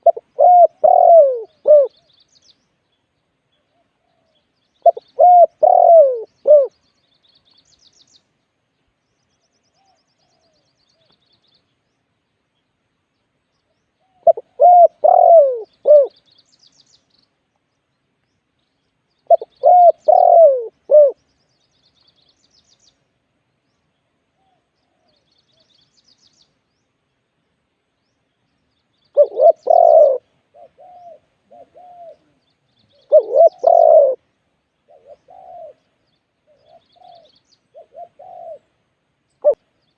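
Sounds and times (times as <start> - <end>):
dove cooing: 0.0 - 2.1, 3.7 - 6.8, 14.0 - 16.2, 19.3 - 21.2, 29.1 - 34.2, 34.9 - 38.8, 39.4 - 39.6
small birds chirping: 0.0 - 39.9.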